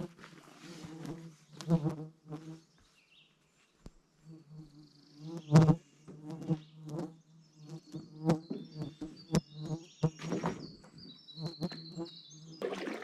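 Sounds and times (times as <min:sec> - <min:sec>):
insects buzzing: 0:04.2 - 0:13.0.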